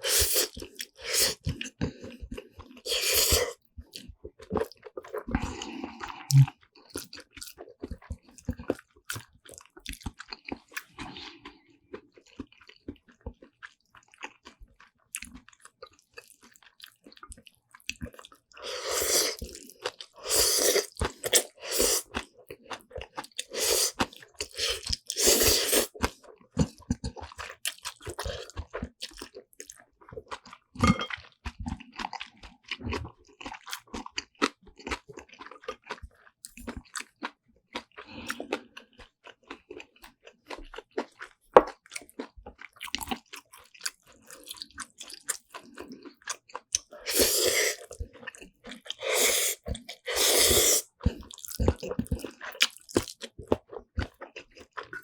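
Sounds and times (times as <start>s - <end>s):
close chewing of noodles: 0.0s - 55.0s
food crunching: 0.0s - 55.0s
wet mouth clicks: 6.2s - 6.6s.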